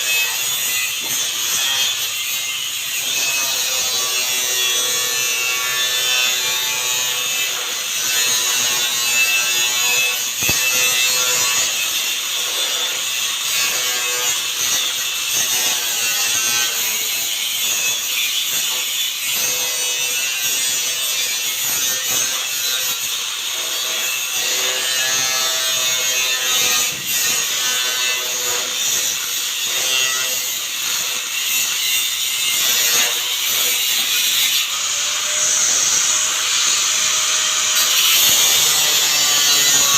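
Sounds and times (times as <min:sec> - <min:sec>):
power tool cutting: 0:00.0 - 0:39.9.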